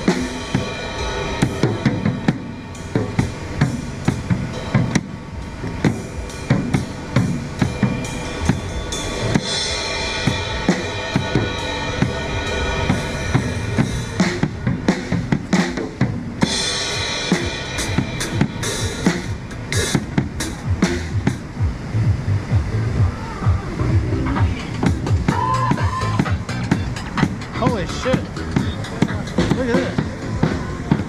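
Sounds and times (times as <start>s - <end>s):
cymbals washing: 0.0s - 31.0s
bass drum and snare beat: 12.9s - 31.0s.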